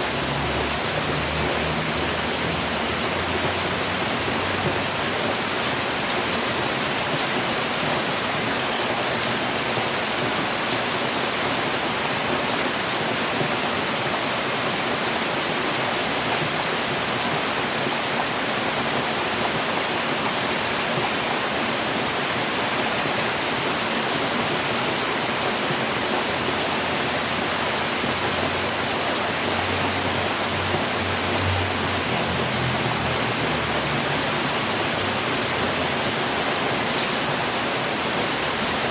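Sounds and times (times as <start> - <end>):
rain on a roof: 0.0 - 38.9.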